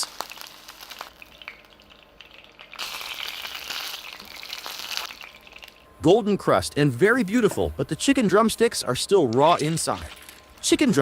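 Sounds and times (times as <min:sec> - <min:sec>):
chicken sizzling in frying: 0:00.0 - 0:05.9.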